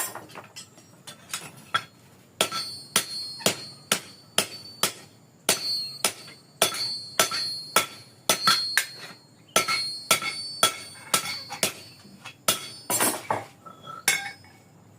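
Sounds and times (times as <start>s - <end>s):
hammer striking metal on anvil: 1.8s - 13.3s.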